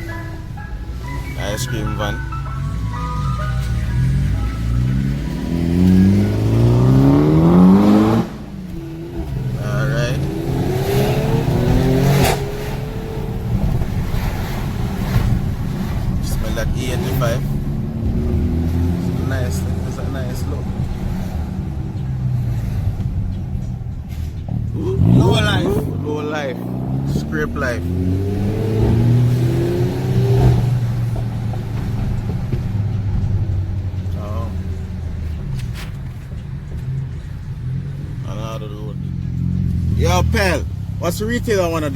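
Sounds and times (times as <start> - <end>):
car engine accelerating: 0.0 - 41.9
sharp crack: 9.2 - 17.6.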